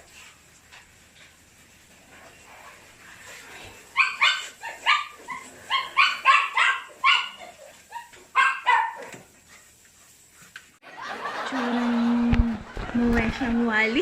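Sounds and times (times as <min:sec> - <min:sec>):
dog barking: 0:04.0 - 0:07.4, 0:08.0 - 0:09.1.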